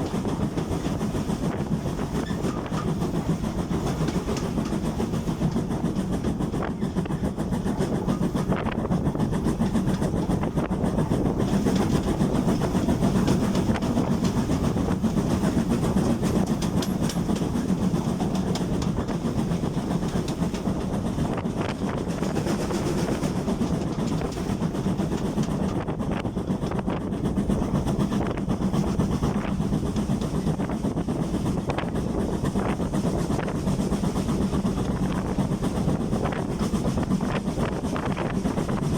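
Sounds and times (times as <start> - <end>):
wheel clicks over rail joints: 0.0 - 26.8
train rumbling on track: 0.0 - 38.9.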